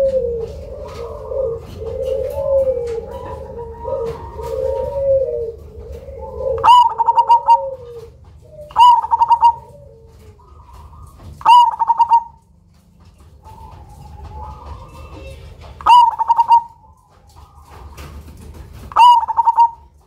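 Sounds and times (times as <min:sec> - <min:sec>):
dove singing loud phrases: 0:00.0 - 0:12.5, 0:13.2 - 0:17.7, 0:18.9 - 0:20.0.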